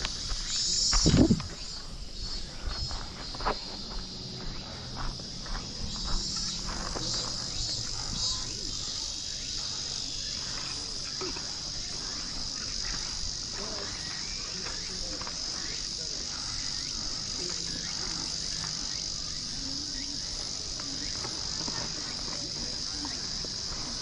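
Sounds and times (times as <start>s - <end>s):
insects droning chorus: 0.0s - 24.0s.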